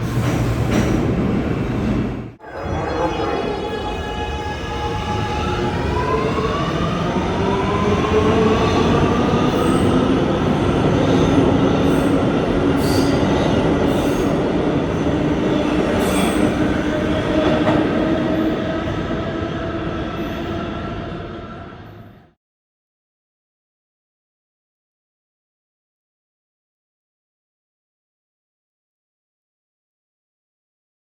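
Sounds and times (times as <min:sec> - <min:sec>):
train wheels rumbling on rails: 0:00.0 - 0:02.4, 0:04.8 - 0:20.2.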